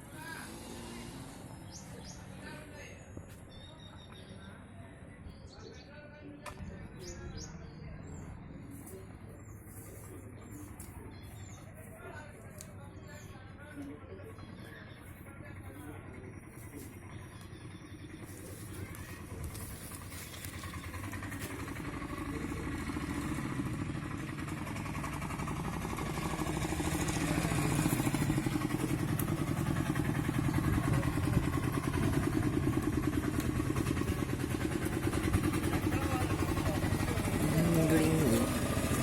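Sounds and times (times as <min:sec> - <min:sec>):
small engine running: 0:00.0 - 0:02.2, 0:14.8 - 0:39.0.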